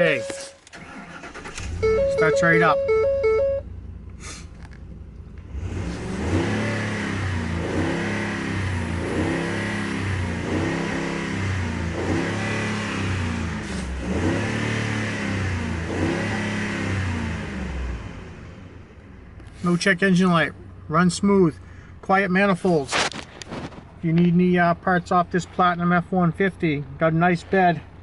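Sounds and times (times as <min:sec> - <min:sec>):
truck engine revving: 0:05.4 - 0:18.7.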